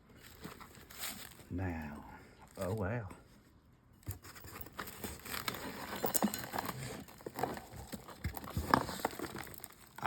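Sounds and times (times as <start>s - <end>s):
wrapping material crinkling: 4.8s - 10.0s.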